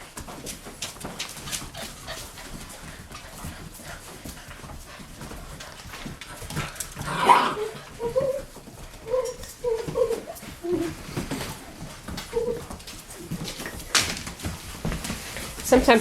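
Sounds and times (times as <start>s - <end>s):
puppies yipping and whining: 7.0s - 13.9s
puppy yelp: 7.1s - 10.9s.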